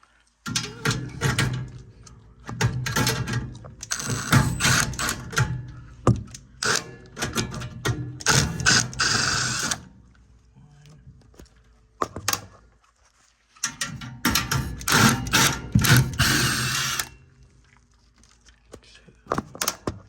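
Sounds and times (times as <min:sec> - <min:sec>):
sheet metal parts clattering: 0:00.5 - 0:01.8, 0:02.5 - 0:06.0, 0:13.6 - 0:17.1.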